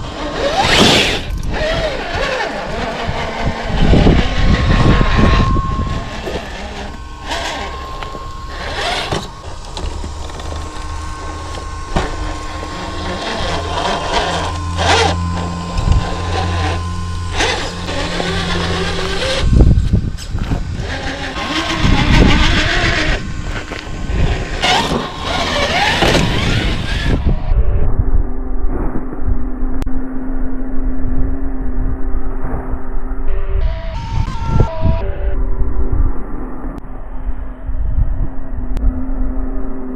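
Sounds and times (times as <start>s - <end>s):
toy car drivetrain whine: 0.0s - 27.6s.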